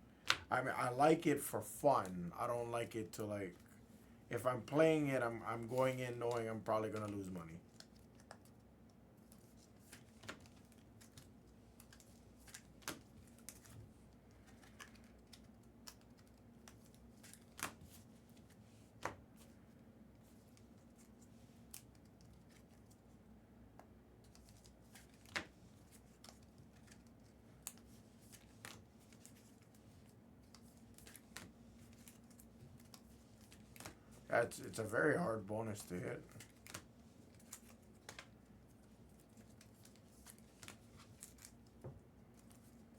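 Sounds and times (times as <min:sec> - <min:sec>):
faint steady hum: 0:00.0 - 0:42.9
trading cards and foil rustling: 0:30.5 - 0:38.4.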